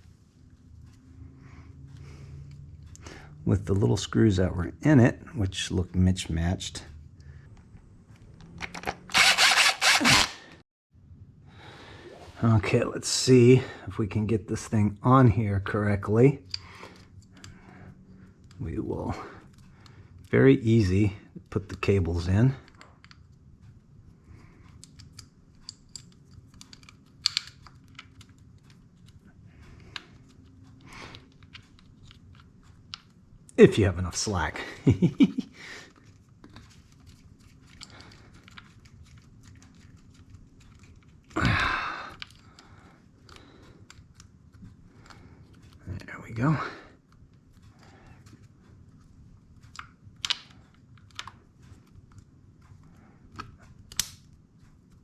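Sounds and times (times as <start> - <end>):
small metal parts clicking: 24.7 - 29.2, 42.1 - 44.3.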